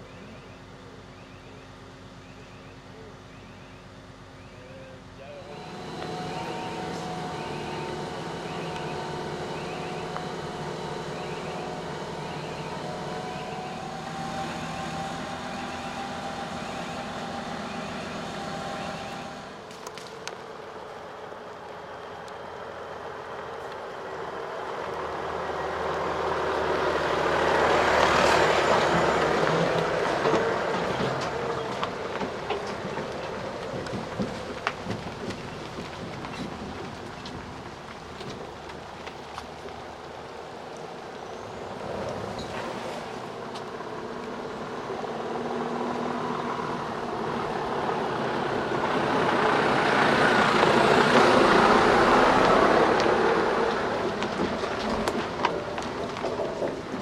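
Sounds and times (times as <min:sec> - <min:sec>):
heavy truck engine running: 0:00.0 - 0:57.0
heavy vehicle passing: 0:05.3 - 0:19.7, 0:36.8 - 0:57.0.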